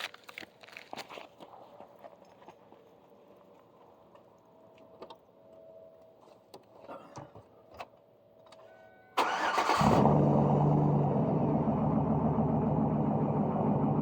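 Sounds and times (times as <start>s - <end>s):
engine cranking: 9.2s - 10.2s
loud engine idling: 9.2s - 14.0s.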